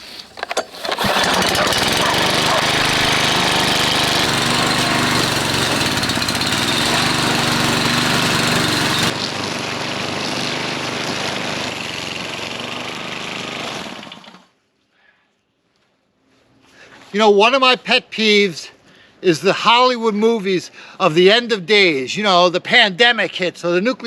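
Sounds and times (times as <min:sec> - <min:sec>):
string trimmer engine running: 0:00.4 - 0:14.5.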